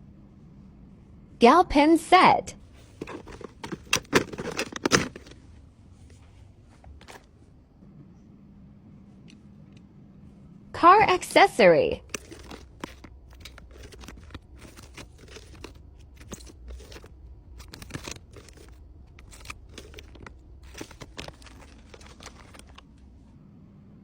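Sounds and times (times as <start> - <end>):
plastic packaging crinkling: 12.0 - 22.9.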